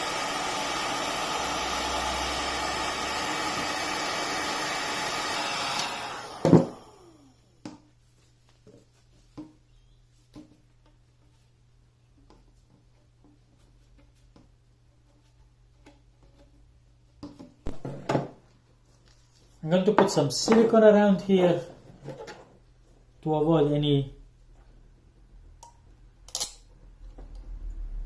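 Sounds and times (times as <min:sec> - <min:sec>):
power tool rushing whine: 0:00.0 - 0:07.4.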